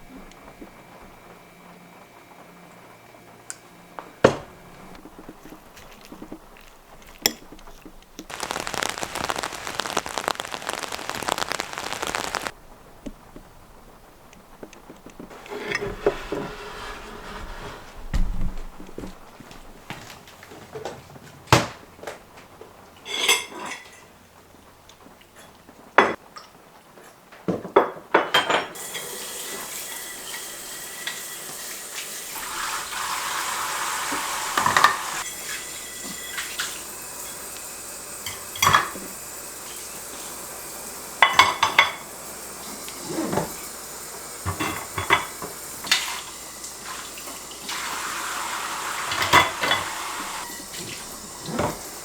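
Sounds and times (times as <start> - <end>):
dishes and cutlery clinking: 41.2 - 42.0.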